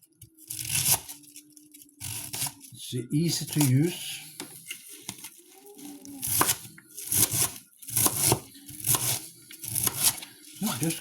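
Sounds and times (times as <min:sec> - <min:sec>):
knife slicing cabbage: 0:00.5 - 0:01.4, 0:02.0 - 0:02.7, 0:06.2 - 0:10.9.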